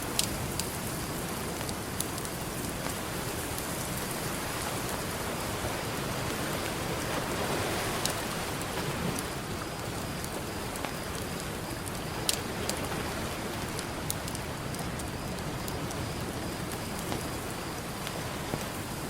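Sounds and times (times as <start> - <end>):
campfire crackling and popping: 0.0 - 7.0, 7.9 - 19.0
ocean surf: 3.4 - 9.6.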